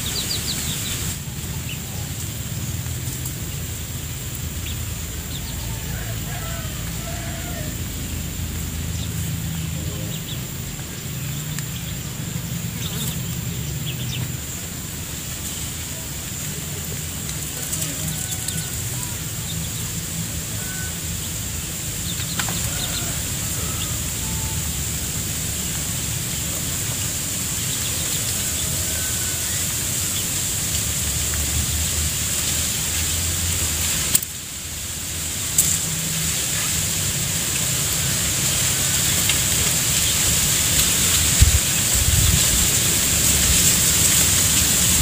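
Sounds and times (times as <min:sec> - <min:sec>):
chickens clucking: 0:00.0 - 0:30.8.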